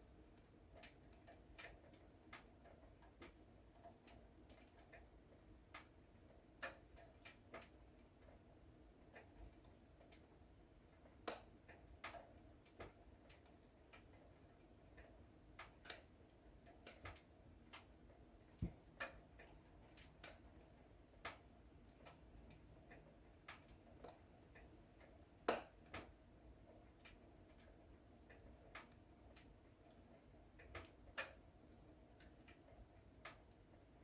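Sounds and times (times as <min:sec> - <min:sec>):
wood fire crackling: 0:00.1 - 0:22.7, 0:23.4 - 0:26.2.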